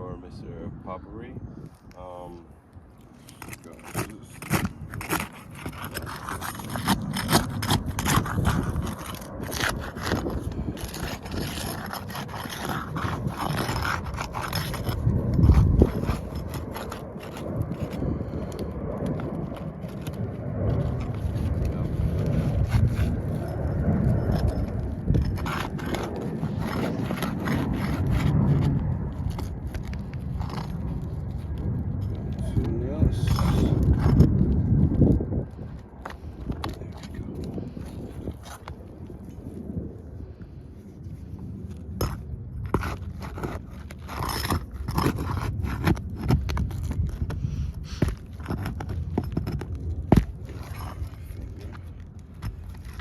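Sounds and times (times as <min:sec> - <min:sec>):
steady low rumble: 0:00.0 - 0:53.0
scraping on roof shingles: 0:03.3 - 0:31.6, 0:41.8 - 0:53.0.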